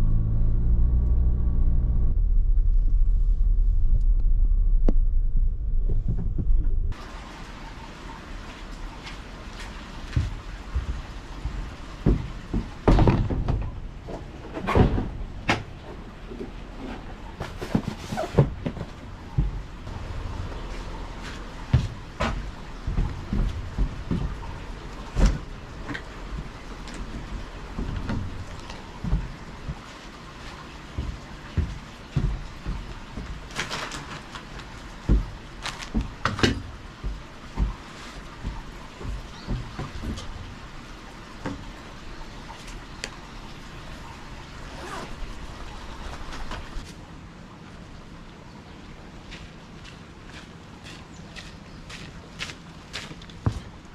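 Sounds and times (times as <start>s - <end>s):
knocks thumps and clatter: 4.0s - 7.0s, 10.2s - 16.5s, 17.4s - 19.9s, 21.6s - 29.9s, 30.9s - 34.2s, 35.0s - 40.7s
rustling or scraping: 16.4s - 19.1s, 32.2s - 40.6s.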